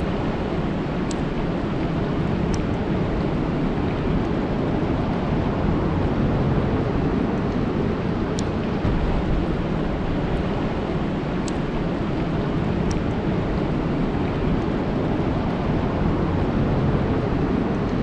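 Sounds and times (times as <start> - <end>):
rain falling on water: 0.0 - 18.0
faint sharp ticks: 11.4 - 11.7.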